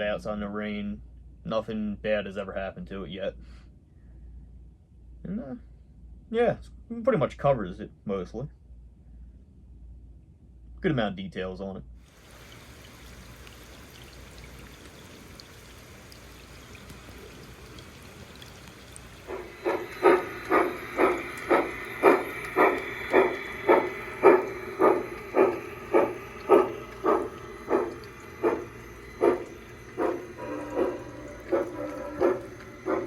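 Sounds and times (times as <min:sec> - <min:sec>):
faint steady hiss: 0:12.0 - 0:33.0
steam exhaust chuffs: 0:12.1 - 0:33.0.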